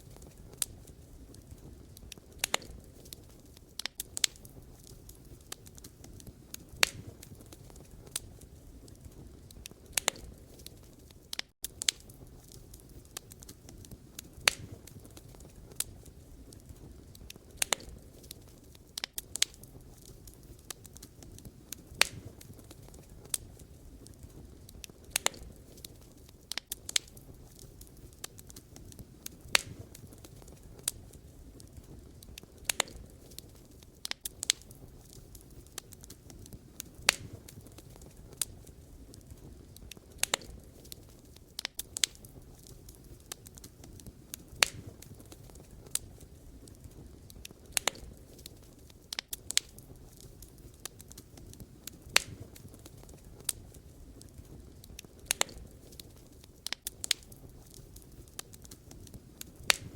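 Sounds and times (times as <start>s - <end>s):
burning logs popping and crackling: 0.0s - 59.9s
low steady hiss: 0.0s - 59.9s.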